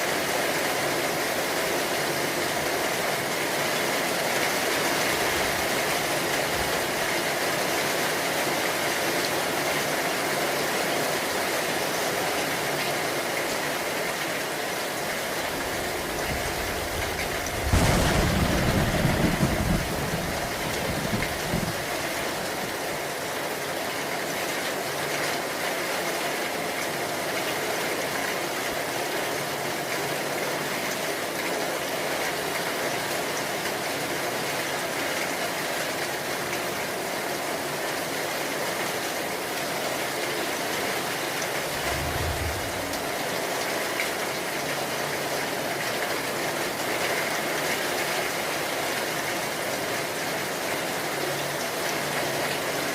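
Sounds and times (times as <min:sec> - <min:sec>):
rain falling: 0:00.0 - 0:52.9
low thunder rumble: 0:15.3 - 0:22.5, 0:41.6 - 0:43.6.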